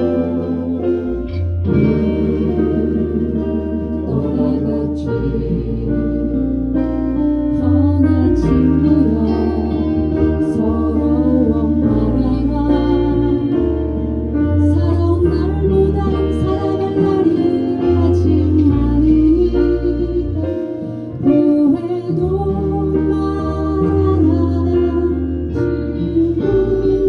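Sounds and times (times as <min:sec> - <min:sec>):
bass line in held notes: 0:00.0 - 0:27.0
keyboard chords: 0:00.0 - 0:27.0
melody line: 0:00.0 - 0:27.0.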